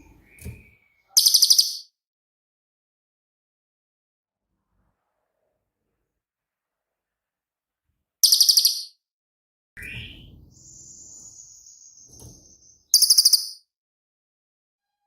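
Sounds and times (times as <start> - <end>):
bird singing trills and whistle: 0.0 - 1.9, 8.2 - 9.0, 9.8 - 13.6.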